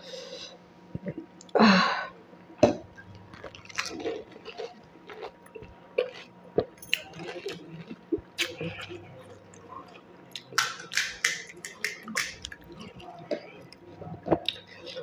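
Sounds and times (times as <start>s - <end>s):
crunching and wet chewing: 3.1s - 15.0s.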